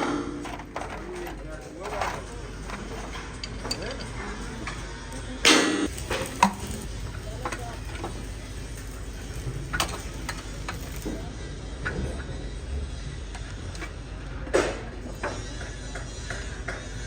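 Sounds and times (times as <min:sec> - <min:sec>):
metal scraping: 0:00.0 - 0:04.8
metal tools knocking and clicking: 0:00.0 - 0:04.8.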